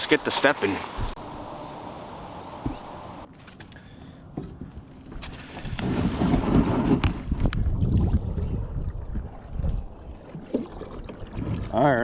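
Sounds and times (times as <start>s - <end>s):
wind buffeting microphone: 0.6s - 3.3s, 5.6s - 12.0s
light knocks: 2.6s - 2.9s.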